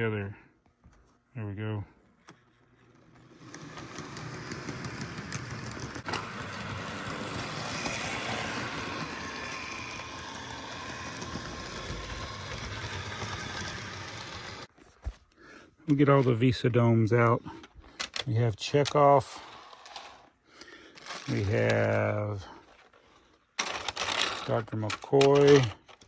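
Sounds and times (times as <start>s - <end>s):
model train motor hum: 2.2s - 14.7s, 18.8s - 20.3s, 21.0s - 22.2s, 23.6s - 25.8s
sharp clicks of train wheels: 2.9s - 14.7s.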